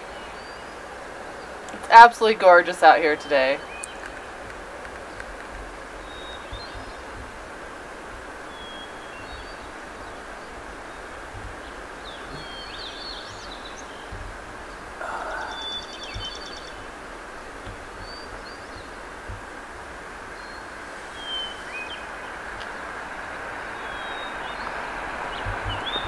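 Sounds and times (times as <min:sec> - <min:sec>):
small birds chirping: 0:00.0 - 0:26.0
steady outdoor hiss: 0:00.0 - 0:26.0
wind thumps on microphone: 0:03.8 - 0:26.0
bird trill: 0:08.5 - 0:16.9.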